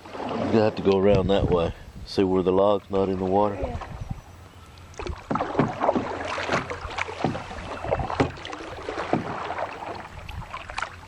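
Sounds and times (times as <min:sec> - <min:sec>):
water splashing around a canoe: 0:00.0 - 0:01.7, 0:02.8 - 0:11.0
canoe bumping: 0:05.0 - 0:11.0.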